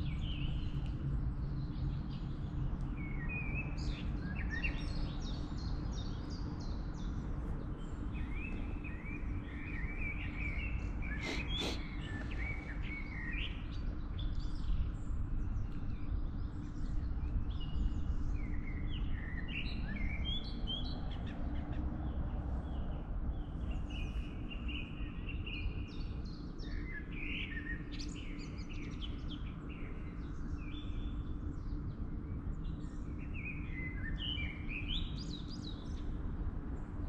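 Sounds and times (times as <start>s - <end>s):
songbirds singing: 0.0s - 37.0s
steady low rumble: 11.8s - 26.4s.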